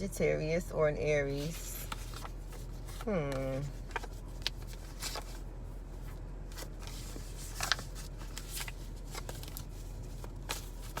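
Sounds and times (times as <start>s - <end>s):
faint steady hum: 0.0s - 11.0s
cards being shuffled: 6.5s - 11.0s.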